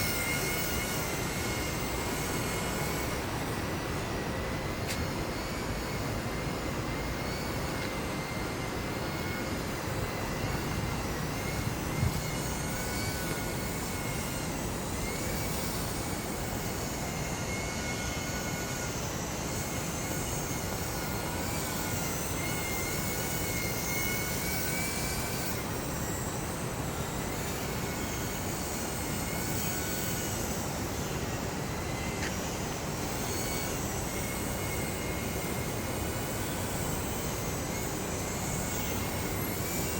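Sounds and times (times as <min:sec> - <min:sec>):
wind noise on microphone: 0:00.0 - 0:16.4
model plane motor whining: 0:00.0 - 0:39.9.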